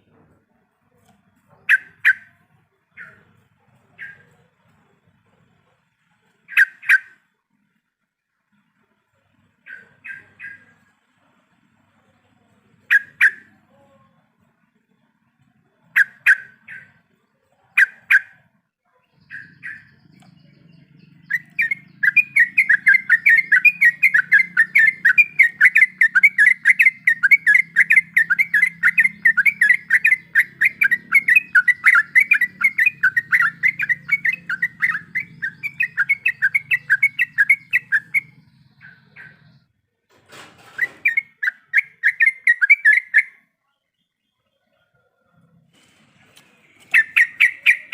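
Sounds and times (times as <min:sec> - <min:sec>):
bird chattering notes: 0:01.5 - 0:04.5, 0:06.4 - 0:07.2, 0:09.6 - 0:10.9, 0:12.8 - 0:13.6, 0:15.8 - 0:17.0, 0:19.2 - 0:39.7, 0:40.7 - 0:43.4, 0:46.8 - 0:47.9
bulbul calls: 0:01.5 - 0:04.5, 0:06.4 - 0:07.3, 0:09.6 - 0:10.9, 0:12.8 - 0:13.6, 0:15.8 - 0:17.0, 0:17.8 - 0:39.7, 0:40.6 - 0:43.5, 0:46.7 - 0:47.9.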